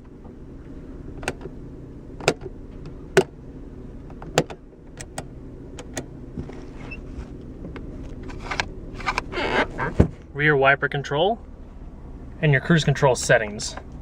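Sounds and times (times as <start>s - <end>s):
car engine idling: 0.0s - 14.0s
interior control clicks: 1.1s - 1.6s, 2.2s - 3.4s, 4.0s - 10.0s.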